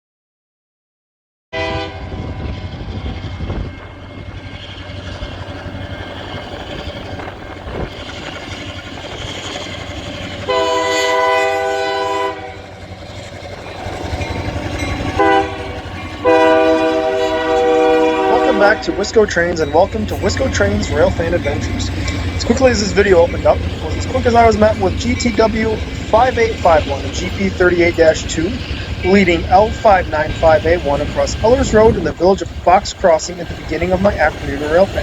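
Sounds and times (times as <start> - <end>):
train air horn blasts: 1.6 - 3.0, 10.4 - 12.7, 15.1 - 19.2
diesel locomotive engine rumbling: 1.6 - 35.0.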